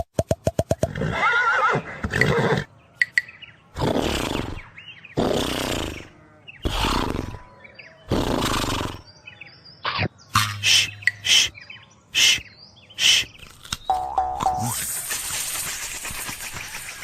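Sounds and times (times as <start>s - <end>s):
person saying shh: 10.6s - 11.6s, 12.2s - 12.4s, 13.0s - 13.3s.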